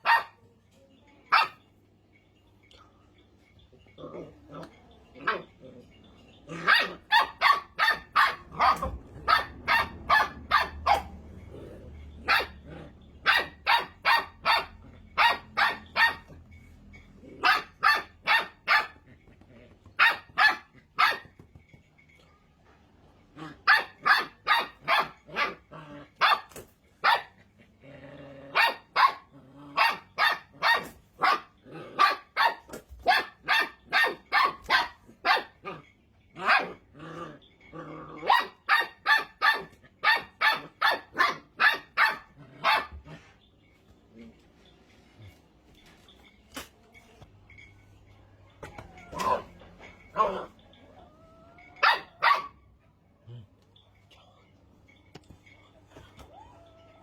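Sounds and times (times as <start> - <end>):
puppy yapping: 48.6 - 52.6.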